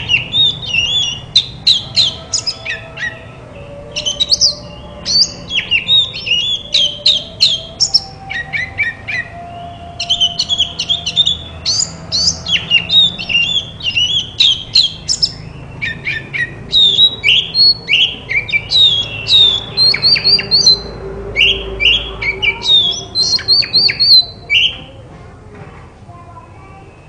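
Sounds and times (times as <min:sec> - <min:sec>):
bird singing whistles and squawks: 0:00.0 - 0:25.0.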